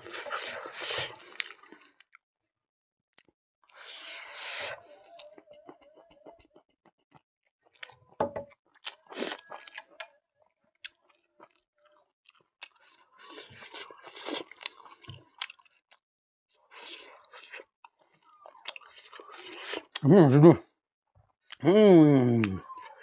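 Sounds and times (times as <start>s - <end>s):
person chewing crunchy food: 0.0s - 2.2s, 3.2s - 20.0s.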